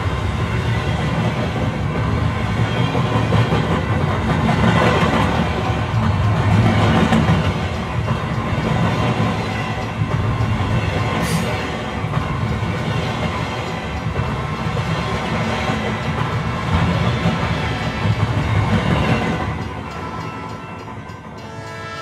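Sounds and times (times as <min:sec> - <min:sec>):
train rumbling on track: 0:00.0 - 0:22.0
train horn: 0:19.8 - 0:22.0.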